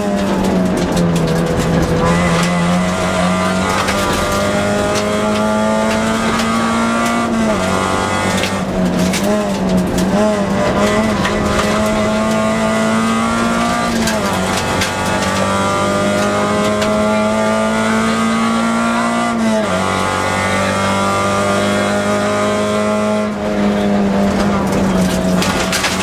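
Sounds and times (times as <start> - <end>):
sharp clicks and knocks: 0.0 - 18.5, 23.8 - 26.0
car engine at high revs: 0.0 - 26.0.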